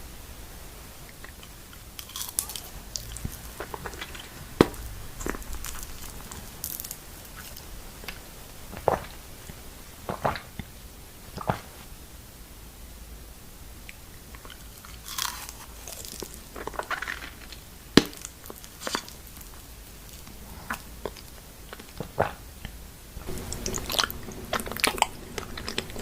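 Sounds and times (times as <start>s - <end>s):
crunchy bites and chewing: 1.2s - 9.2s, 14.3s - 22.4s, 23.2s - 26.0s.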